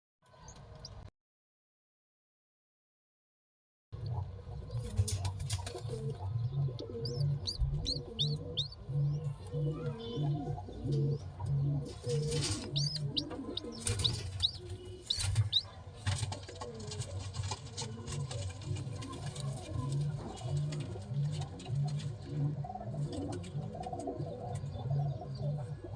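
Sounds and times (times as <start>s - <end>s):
pigeons cooing: 4.0s - 25.9s
squabs squeaking: 5.0s - 11.1s, 11.8s - 15.7s.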